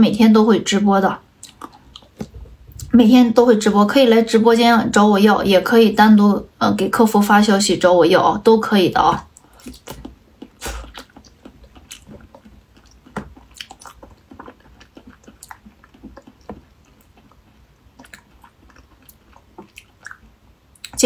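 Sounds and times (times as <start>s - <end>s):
person chewing jelly: 1.3s - 2.9s, 9.2s - 21.0s.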